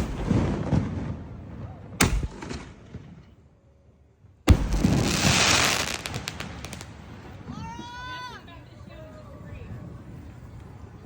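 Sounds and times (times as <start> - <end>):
firework bangs: 0.0 - 3.3, 4.5 - 7.8
firework crackling: 4.5 - 11.0.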